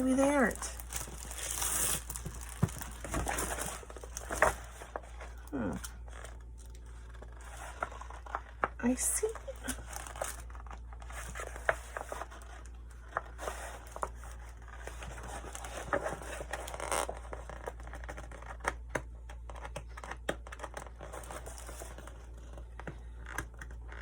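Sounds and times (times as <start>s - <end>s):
plastic sticker sheet crinkling: 0.0s - 18.8s.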